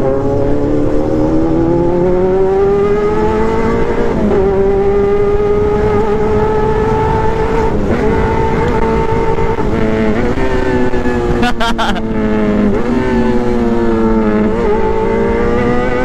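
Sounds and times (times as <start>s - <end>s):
motorcycle engine at high revs: 0.0s - 16.0s.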